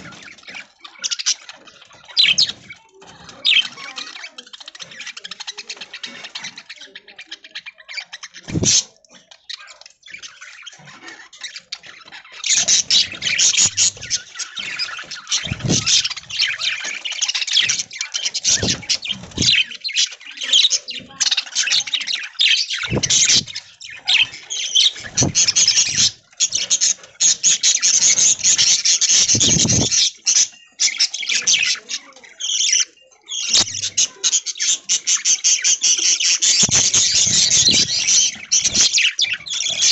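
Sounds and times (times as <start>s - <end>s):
budgerigars chattering: 0.0s - 39.9s
low thuds: 22.9s - 23.5s.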